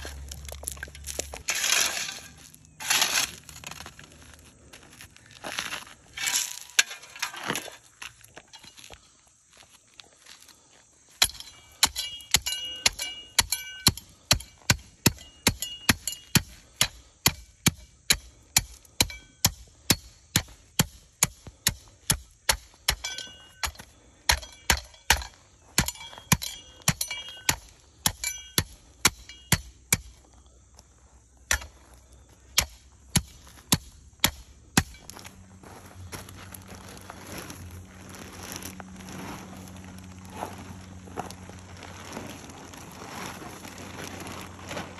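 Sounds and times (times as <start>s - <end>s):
hand tamper pounding asphalt: 11.2s - 30.2s, 32.5s - 35.1s.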